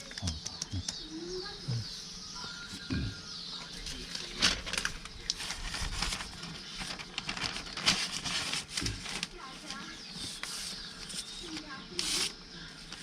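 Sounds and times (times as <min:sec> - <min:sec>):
scattered clicks: 0:00.0 - 0:01.0
birds chirping faintly: 0:00.0 - 0:13.0.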